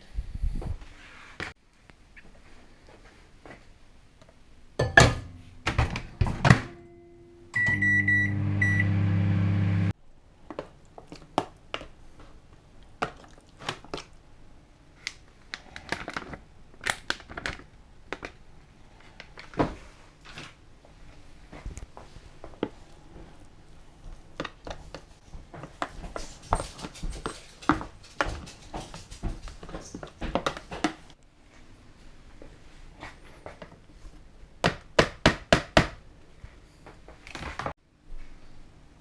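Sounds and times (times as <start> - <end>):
kitchen clatter of knocks: 4.8 - 6.8
microwave oven humming: 6.8 - 9.9
microwave button beeps: 7.6 - 9.9.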